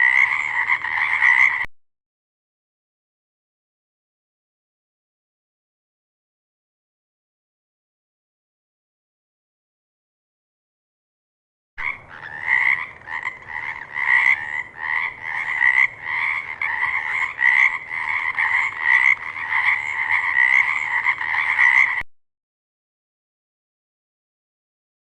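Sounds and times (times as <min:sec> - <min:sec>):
frogs croaking: 0:00.0 - 0:01.7, 0:11.8 - 0:22.0.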